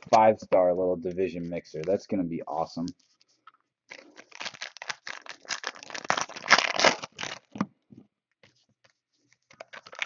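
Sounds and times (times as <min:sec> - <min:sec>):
plastic wrapping crinkling and tearing: 0:03.9 - 0:07.6, 0:09.5 - 0:10.0.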